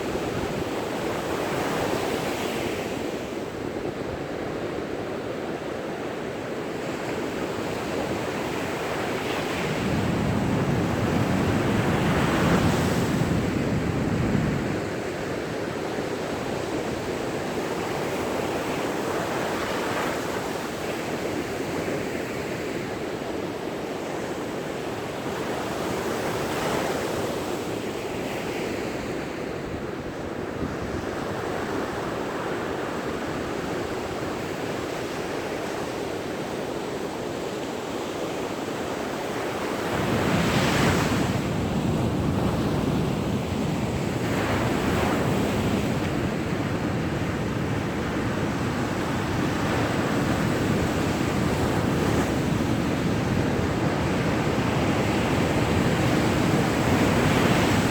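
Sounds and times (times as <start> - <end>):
ocean waves breaking on beach: 0.0 - 57.9
wind noise on microphone: 6.7 - 23.1, 28.2 - 35.4, 39.8 - 57.9.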